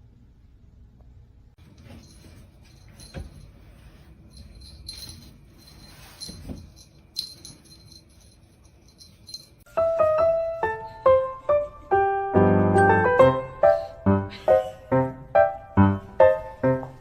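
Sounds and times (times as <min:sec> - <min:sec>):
metallic jingling and rattling: 0:01.6 - 0:09.7
piano music: 0:09.7 - 0:17.0.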